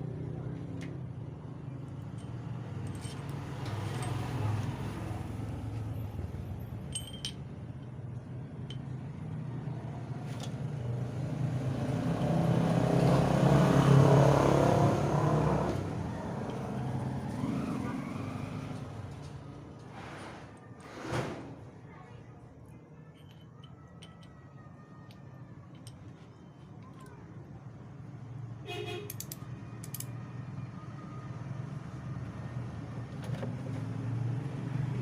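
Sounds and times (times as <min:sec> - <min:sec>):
road traffic rumble: 0:00.0 - 0:35.0
light metal clinks: 0:01.9 - 0:04.6, 0:06.7 - 0:09.4, 0:23.0 - 0:27.3.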